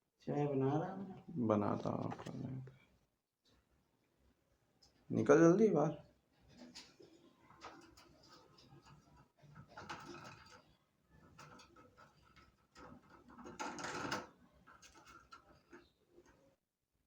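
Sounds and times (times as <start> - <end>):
parrot rattling metal cage lock: 6.6 - 10.7.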